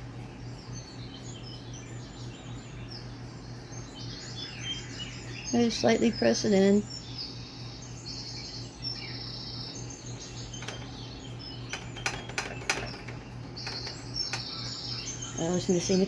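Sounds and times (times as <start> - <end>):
bird chirping trills: 0.0 - 16.0
steady low hum: 0.0 - 16.0
light clicks and taps: 10.3 - 11.1, 11.7 - 14.9.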